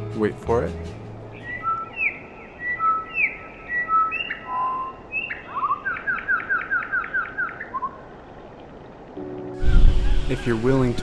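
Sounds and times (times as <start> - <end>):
sparrow singing: 1.3 - 8.0.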